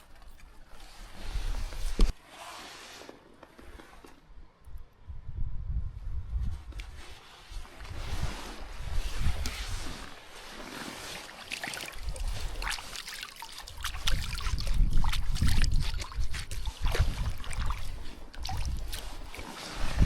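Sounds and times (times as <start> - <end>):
river water splashing: 10.5 - 20.0.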